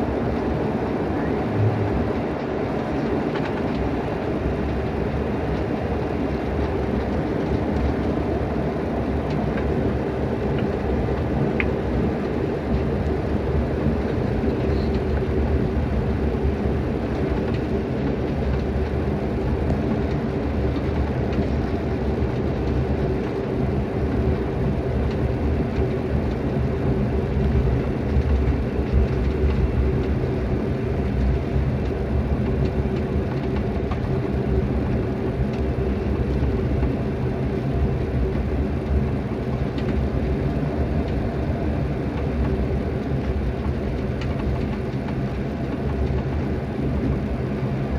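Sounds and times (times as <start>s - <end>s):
constant low hum: 0.0s - 47.9s
jet engine rumble: 0.0s - 47.9s
rushing airflow: 1.0s - 2.4s.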